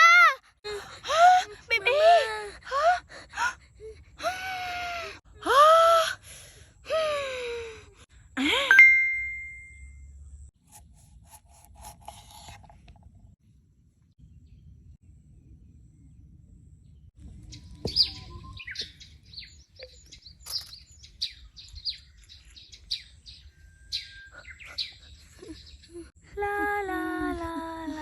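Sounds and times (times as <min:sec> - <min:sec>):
faint low rumble: 0:13.1 - 0:18.4
birds chirping: 0:16.8 - 0:26.1.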